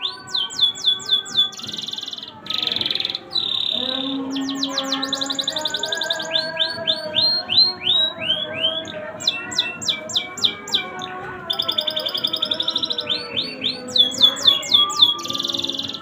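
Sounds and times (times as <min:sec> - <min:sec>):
canary singing trills: 0:00.0 - 0:16.0.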